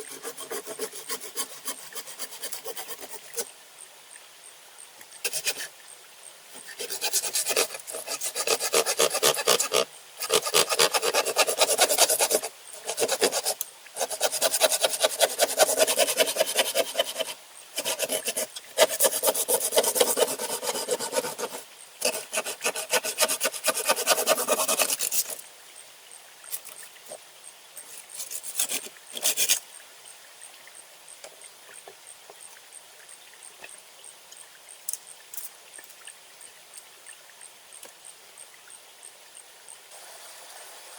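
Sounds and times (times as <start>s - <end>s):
rapid scraping strokes: 0.0s - 3.4s, 6.6s - 25.4s.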